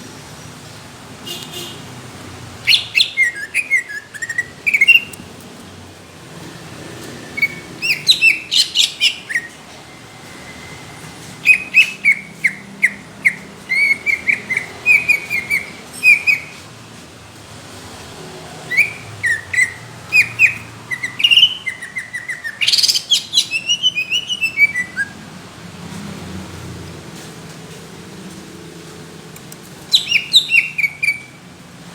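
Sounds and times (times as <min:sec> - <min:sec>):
bird chirping rapidly: 0:02.6 - 0:05.3, 0:07.0 - 0:16.7, 0:18.6 - 0:25.2, 0:29.8 - 0:31.4.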